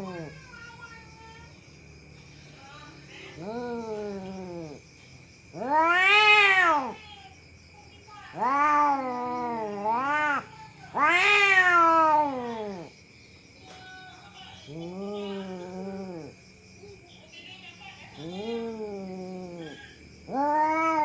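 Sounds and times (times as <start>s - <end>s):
cat yowling: 0.0s - 0.4s, 3.4s - 4.8s, 5.5s - 7.0s, 8.2s - 12.9s, 14.7s - 16.3s, 18.2s - 21.0s.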